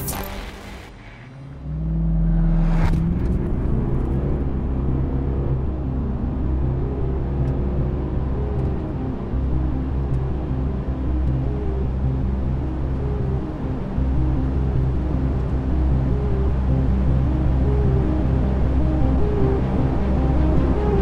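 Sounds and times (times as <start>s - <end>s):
diesel engine revving and accelerating: 0.0s - 8.7s.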